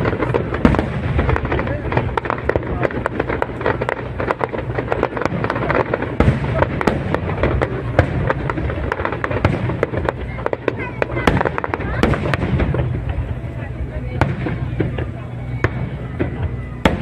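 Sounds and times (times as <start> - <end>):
fireworks cracks and bangs: 0.0 - 17.0
low rumble of bursting shells: 0.0 - 17.0.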